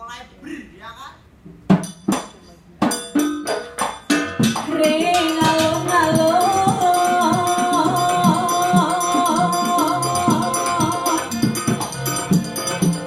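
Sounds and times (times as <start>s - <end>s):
drum strokes: 1.4s - 13.0s
jingling percussion: 1.8s - 13.0s
sustained melody: 4.7s - 13.0s.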